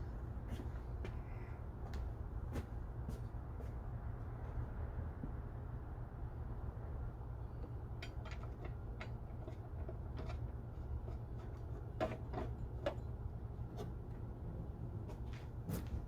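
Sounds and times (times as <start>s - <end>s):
steady low hum: 0.0s - 16.0s
hand tools and metal parts clicking: 7.6s - 13.1s.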